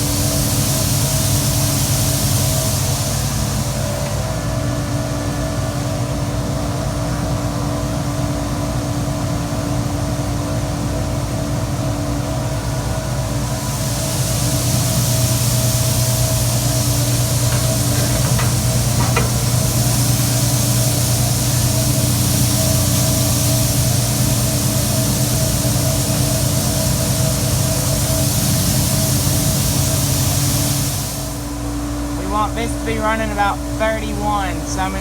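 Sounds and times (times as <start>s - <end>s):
grain pouring hiss: 0.0s - 4.6s, 13.2s - 31.6s
grain auger humming: 14.2s - 28.2s.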